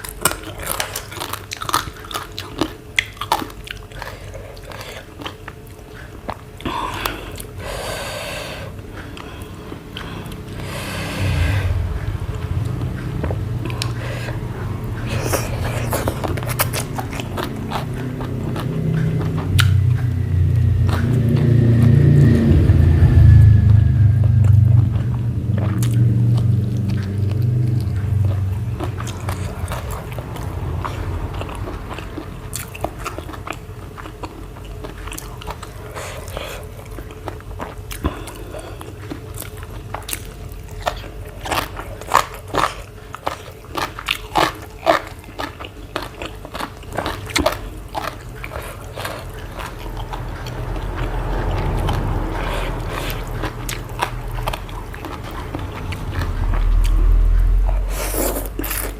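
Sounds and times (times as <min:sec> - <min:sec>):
person chewing and crunching food: 0:00.0 - 0:58.9
low rumble: 0:08.8 - 0:37.8, 0:46.8 - 0:58.9.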